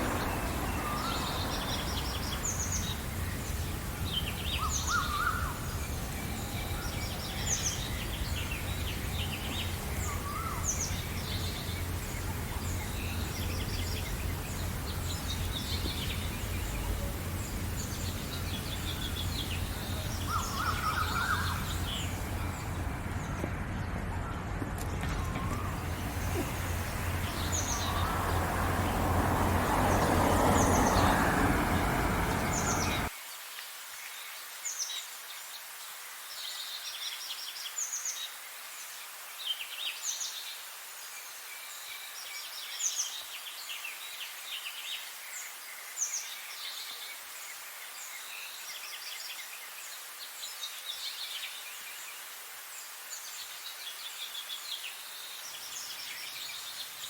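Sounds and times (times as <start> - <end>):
loud low background noise: 0.0 - 33.1
songbirds chirping and trilling: 0.0 - 33.2.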